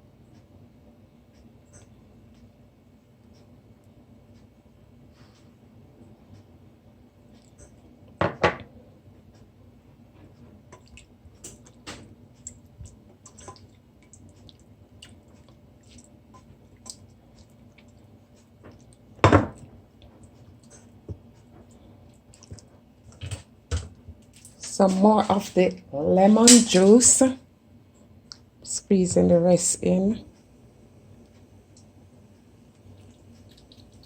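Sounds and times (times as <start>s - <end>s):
kitchenware knocks: 8.2s - 8.6s
juice dripping into bowl: 10.7s - 19.2s, 31.2s - 34.0s.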